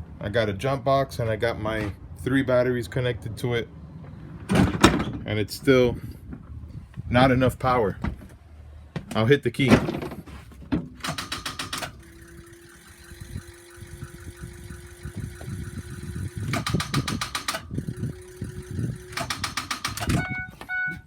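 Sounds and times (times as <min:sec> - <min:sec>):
starter clicking rapidly: 0:11.0 - 0:20.3
steady tone: 0:12.0 - 0:19.2.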